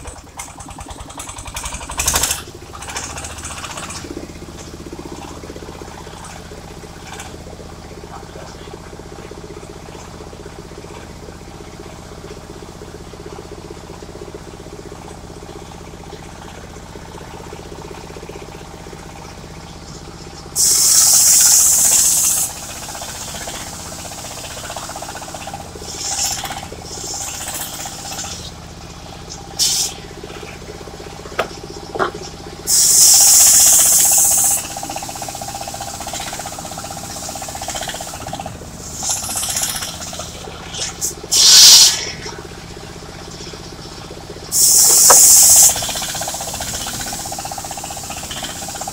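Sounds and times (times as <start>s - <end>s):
sawmill engine running: 0.0s - 48.9s
loud hissing bursts: 20.6s - 28.6s, 29.5s - 30.3s, 32.6s - 42.4s, 44.5s - 48.9s
short rasps: 37.6s - 42.4s.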